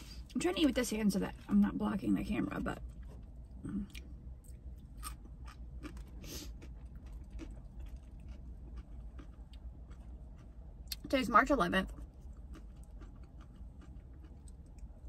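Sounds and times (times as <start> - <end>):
steady low rumble: 0.0 - 15.0
person chewing food: 2.8 - 11.0, 11.9 - 15.0.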